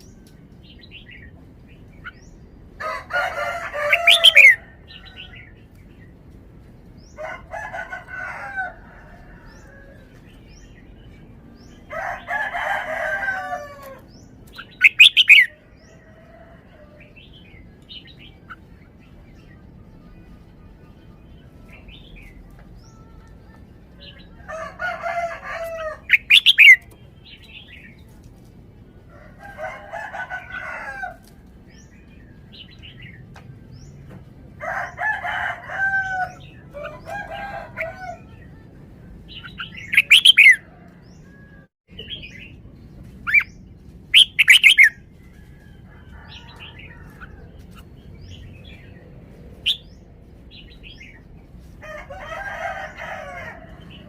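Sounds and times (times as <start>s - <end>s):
rooster crowing: 2.8s - 5.5s, 7.1s - 10.2s, 11.8s - 14.1s, 24.3s - 26.8s, 29.1s - 31.3s, 34.6s - 38.4s, 44.4s - 47.6s, 51.8s - 54.0s
bird singing whistled phrases: 14.8s - 15.5s.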